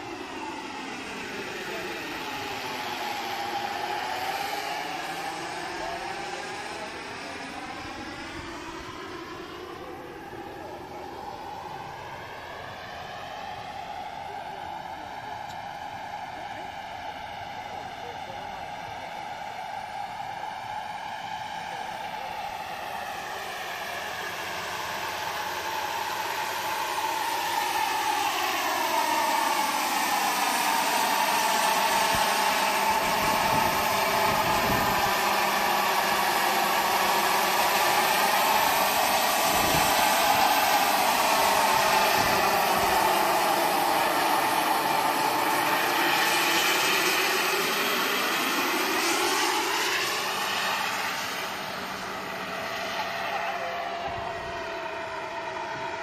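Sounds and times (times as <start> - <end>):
model helicopter turbine whine: 0.0 - 56.0.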